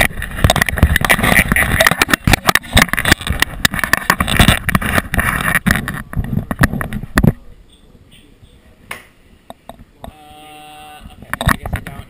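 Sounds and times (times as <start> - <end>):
objects clattering and scraping: 0.0 - 7.4.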